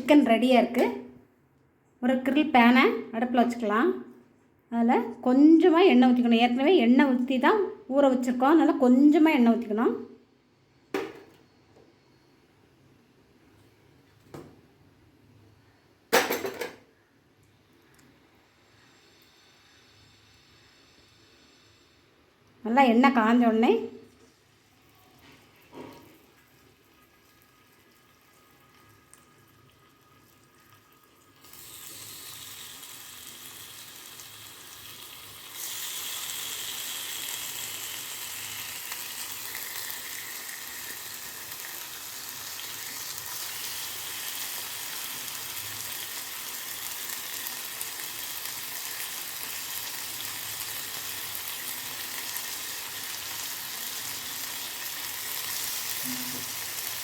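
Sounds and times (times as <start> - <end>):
chicken sizzling in hot oil: 24.3 - 57.0.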